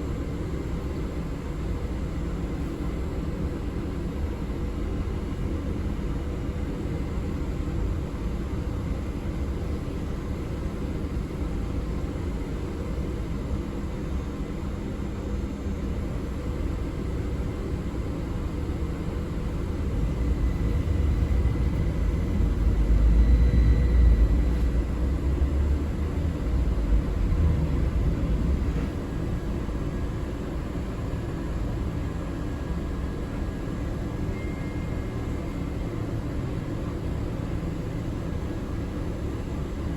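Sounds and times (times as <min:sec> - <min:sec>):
bus rumbling inside cabin: 0:00.0 - 0:39.9
faint high whine: 0:14.0 - 0:39.9.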